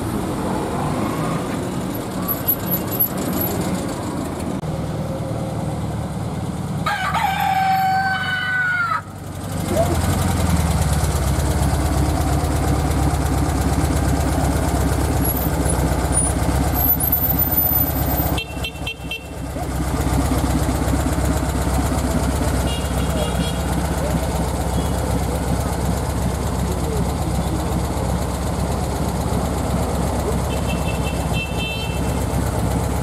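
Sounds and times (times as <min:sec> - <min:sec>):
car engines rumbling: 0:00.0 - 0:33.0
rooster crowing: 0:06.8 - 0:09.1.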